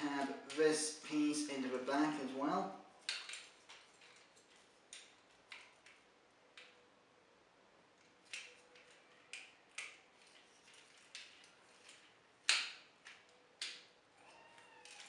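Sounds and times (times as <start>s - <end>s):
plastic action figure parts clicking: 3.0s - 6.0s, 8.0s - 13.9s.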